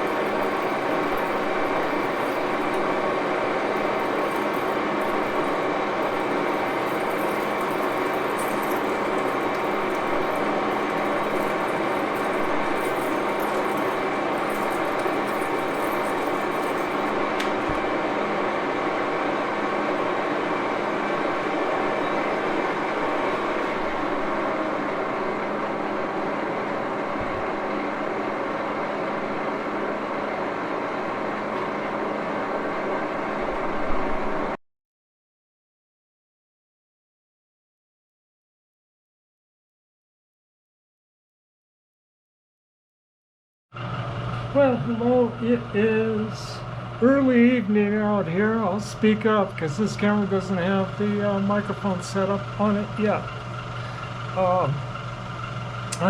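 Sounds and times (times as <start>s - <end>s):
lathe gearbox humming and whining: 0.0s - 34.6s, 43.8s - 56.0s.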